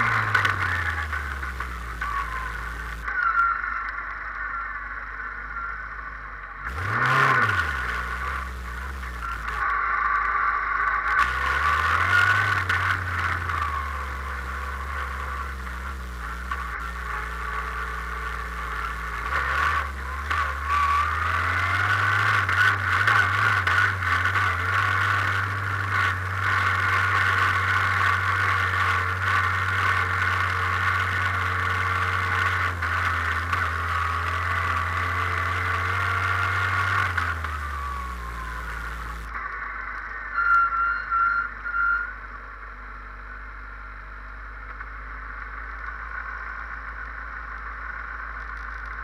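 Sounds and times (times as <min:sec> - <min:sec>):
car rattling: 0:00.0 - 0:03.1, 0:06.7 - 0:09.6, 0:11.2 - 0:39.3
car engine running low: 0:00.0 - 0:49.0.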